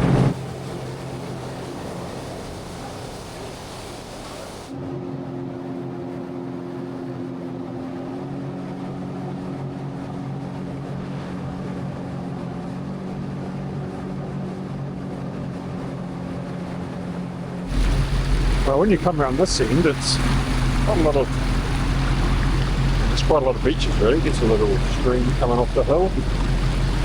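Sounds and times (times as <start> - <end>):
jet ski engine humming: 0.0 - 27.0.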